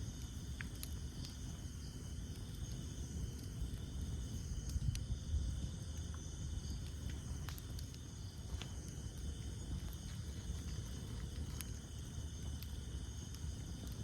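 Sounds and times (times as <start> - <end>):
campfire crackling and popping: 0.0 - 14.0
night insects chorus: 0.0 - 14.0.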